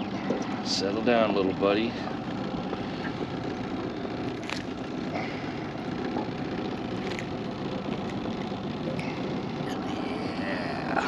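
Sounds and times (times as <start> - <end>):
boat motor droning: 0.0 - 11.0.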